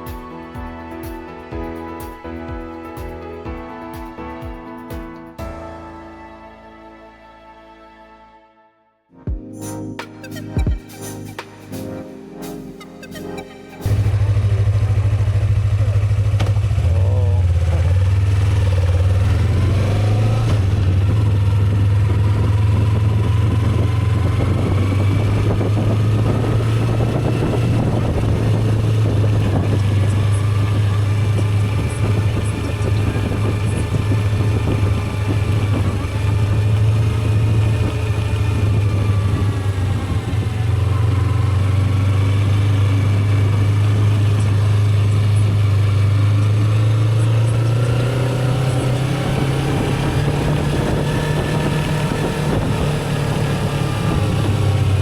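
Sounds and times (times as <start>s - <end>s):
motorcycle engine humming: 13.8s - 55.0s
rushing wind noise: 18.0s - 55.0s.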